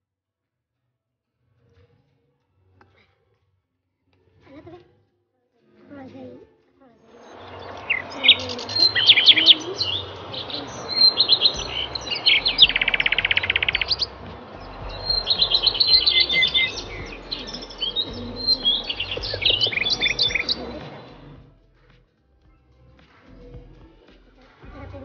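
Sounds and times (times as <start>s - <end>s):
birds chirping: 7.1s - 21.4s
bird rattling trill: 7.2s - 21.4s.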